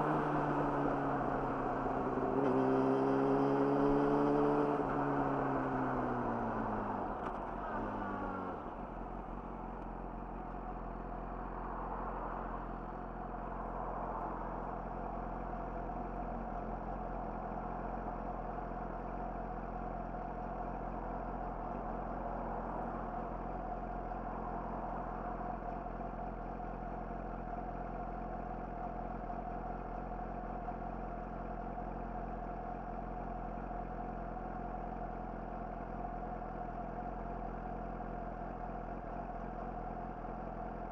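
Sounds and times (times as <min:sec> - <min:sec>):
motorcycle engine idling: 0:14.5 - 0:40.9.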